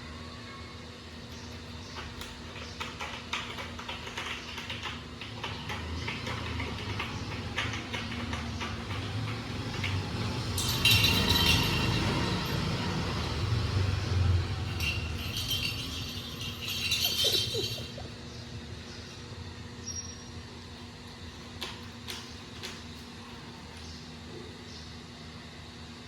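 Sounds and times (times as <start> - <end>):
bright metallic jingle: 10.4 - 18.2.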